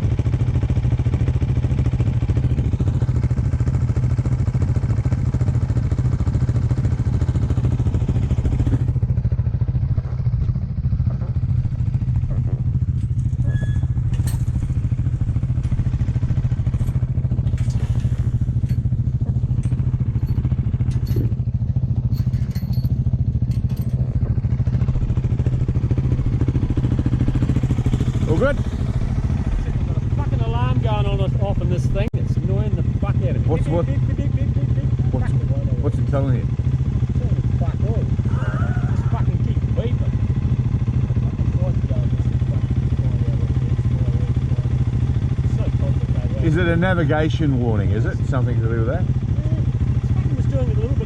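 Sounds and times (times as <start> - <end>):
dirt bike engine running: 0.0 - 51.0.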